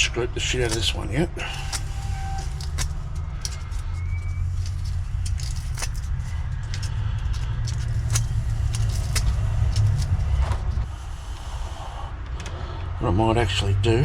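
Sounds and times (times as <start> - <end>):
sandpaper scratching wire: 0.0 - 12.0
steady low rumble: 0.0 - 14.0.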